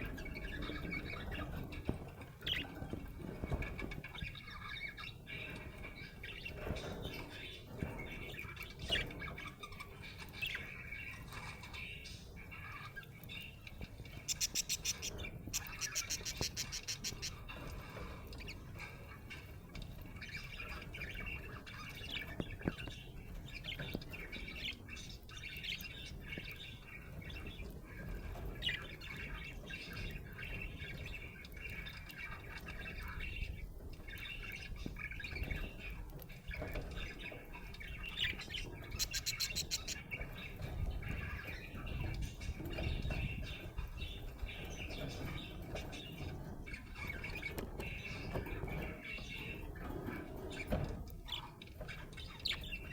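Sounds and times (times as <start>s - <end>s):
budgerigar chirping and chattering: 14.1s - 18.0s, 38.0s - 42.2s.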